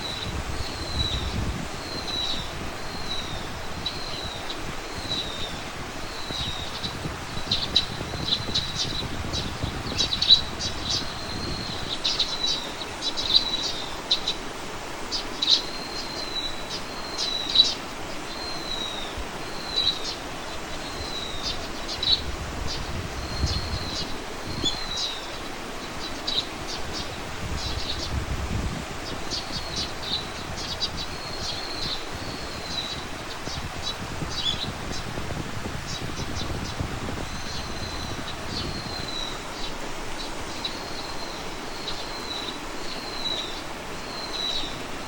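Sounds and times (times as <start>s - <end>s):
small bird chirping and whistling: 0.0s - 14.4s
low wind rumble: 0.0s - 45.0s.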